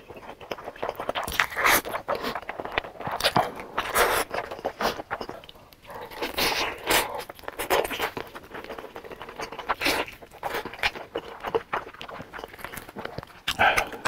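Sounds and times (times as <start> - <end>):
biting and chewing chicken: 0.0 - 14.0.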